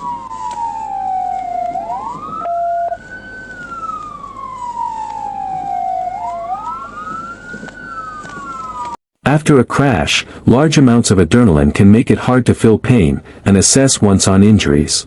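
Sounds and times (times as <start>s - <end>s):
emergency vehicle sirens wailing: 0.0s - 9.0s
short steady siren tone: 0.0s - 9.0s.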